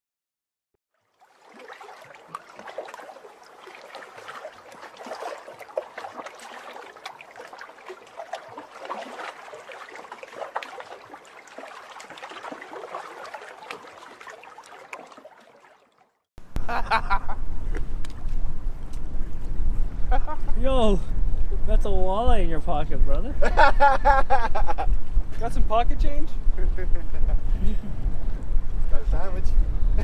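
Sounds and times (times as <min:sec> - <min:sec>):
river water splashing: 0:00.9 - 0:16.3.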